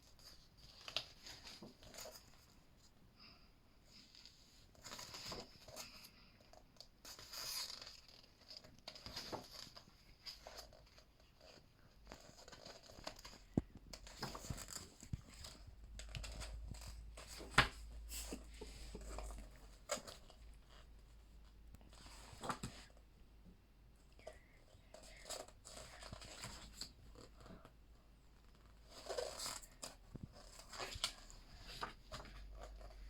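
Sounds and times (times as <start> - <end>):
book pages turning: 3.9 - 6.1, 6.8 - 20.9, 21.8 - 23.0, 24.9 - 27.7, 28.6 - 33.0.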